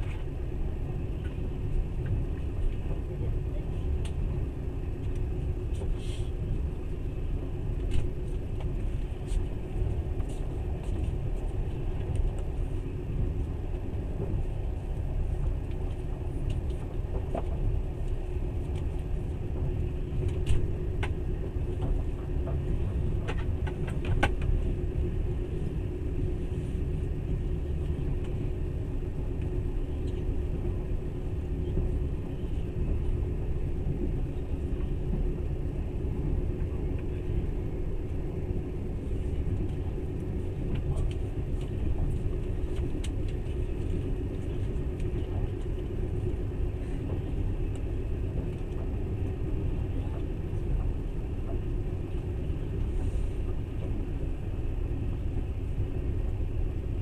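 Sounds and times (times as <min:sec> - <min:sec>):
train wheels rumbling on track: 0:00.0 - 0:57.0.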